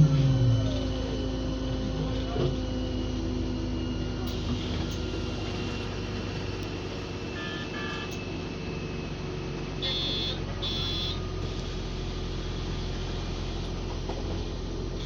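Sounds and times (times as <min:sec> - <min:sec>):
vehicle interior hum: 0:00.0 - 0:15.0
short electronic beeps: 0:09.8 - 0:11.3.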